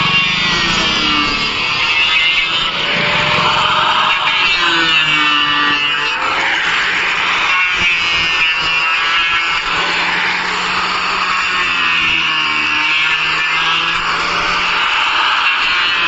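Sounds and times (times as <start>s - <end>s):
power tool motor whine: 0.0s - 16.0s.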